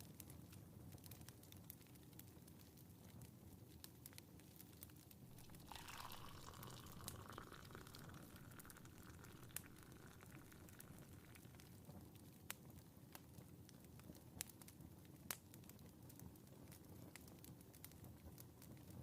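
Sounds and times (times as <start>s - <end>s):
faint fireplace crackle: 0.0s - 19.0s
tea pouring into cup: 5.3s - 12.0s.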